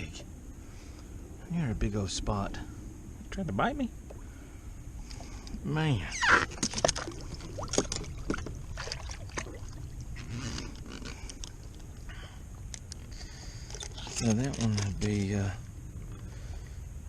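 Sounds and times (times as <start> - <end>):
wind and water rumble: 0.0 - 17.0
fishing gear clicks and scrapes: 12.7 - 15.2.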